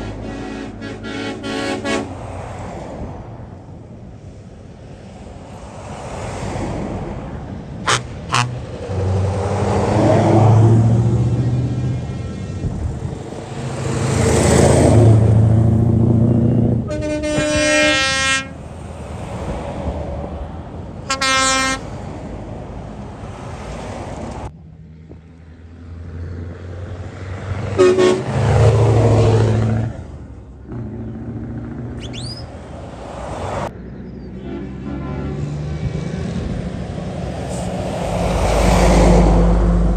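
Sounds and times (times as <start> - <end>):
truck horn blasts: 0.0 - 2.4, 7.8 - 9.2, 16.2 - 18.6, 21.0 - 22.0, 27.7 - 29.4, 34.3 - 35.8
lorries driving past: 0.0 - 39.9.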